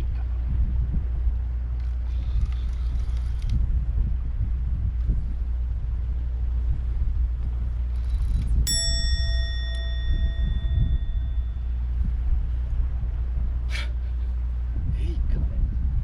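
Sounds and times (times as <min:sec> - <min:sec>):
wind rumble on microphone: 0:00.0 - 0:16.0
small metal bell ringing: 0:08.7 - 0:12.0.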